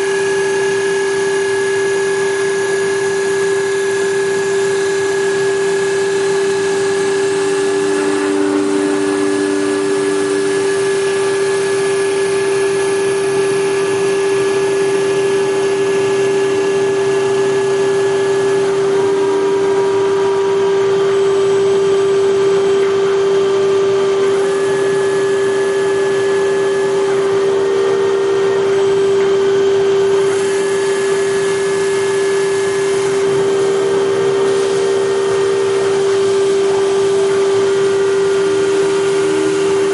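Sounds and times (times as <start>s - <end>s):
faint machine tones: 0.0s - 39.9s
wood lathe motor whine: 0.0s - 39.9s.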